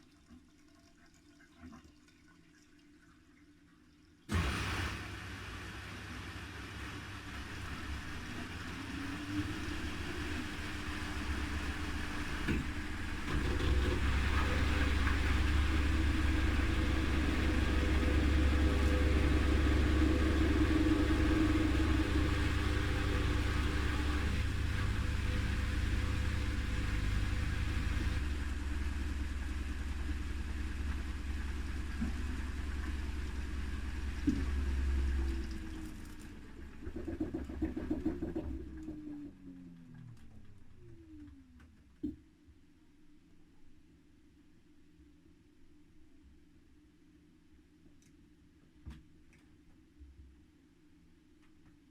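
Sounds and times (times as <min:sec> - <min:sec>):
washing machine drum spinning: 0:06.5 - 0:41.5.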